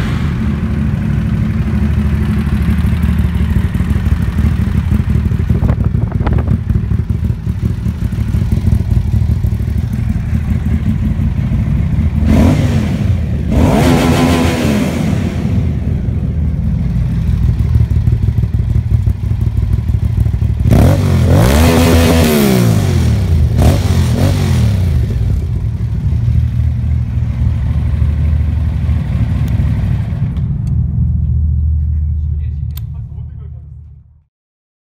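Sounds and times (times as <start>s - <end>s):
motorcycle engine idling: 0.0s - 13.5s, 15.5s - 21.3s, 23.1s - 33.9s
motorcycle engine revving: 0.0s - 31.6s.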